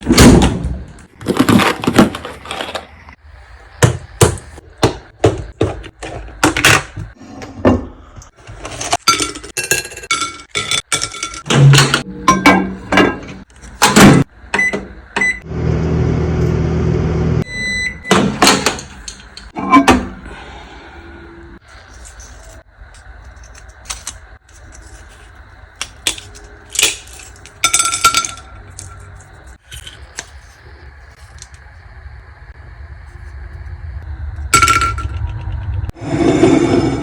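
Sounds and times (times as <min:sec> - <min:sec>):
microwave humming: 0:11.1 - 0:21.5
microwave keypad beeps: 0:14.6 - 0:15.4, 0:17.4 - 0:18.2.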